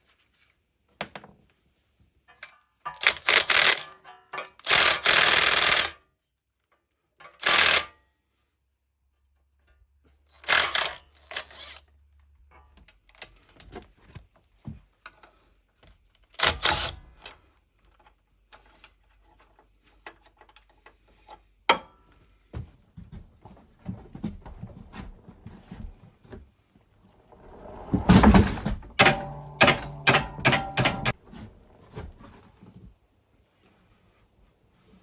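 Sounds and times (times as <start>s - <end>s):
tools and parts clicking: 27.4s - 31.2s.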